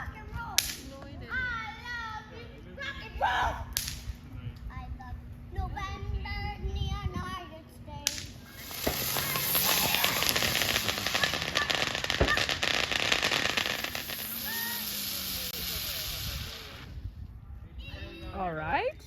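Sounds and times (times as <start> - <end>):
sharp crack: 3.8 - 4.1, 8.1 - 17.0
fireworks crackling: 8.0 - 17.1.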